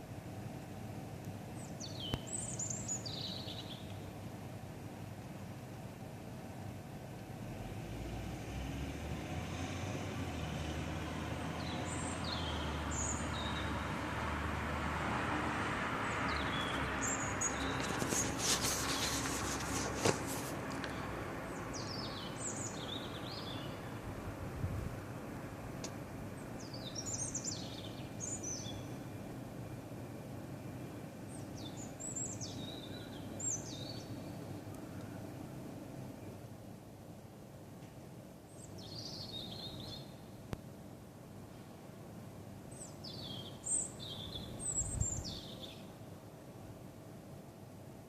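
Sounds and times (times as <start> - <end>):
songbird singing: 1.4 - 4.2, 7.2 - 14.8, 15.8 - 36.5, 38.4 - 40.8, 42.6 - 46.2.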